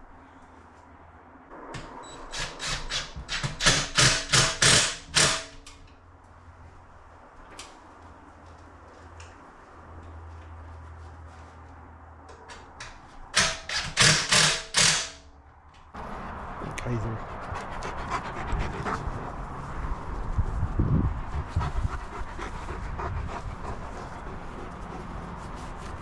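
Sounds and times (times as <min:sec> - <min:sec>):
hammer driving nails: 0:02.3 - 0:05.7, 0:13.3 - 0:15.2.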